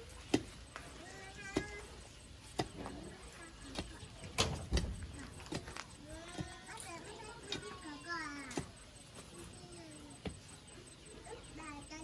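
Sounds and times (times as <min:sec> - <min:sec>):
sharp knocks: 0:02.5 - 0:07.8.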